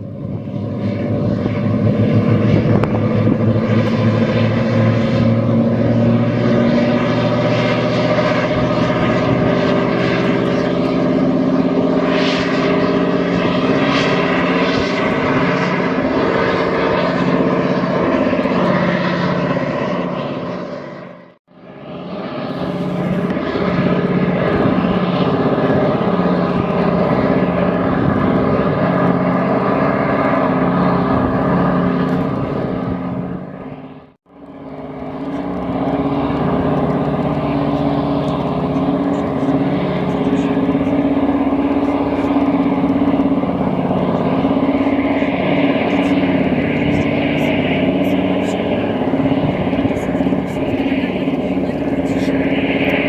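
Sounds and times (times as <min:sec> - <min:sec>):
boat engines running: 0:00.0 - 0:53.0.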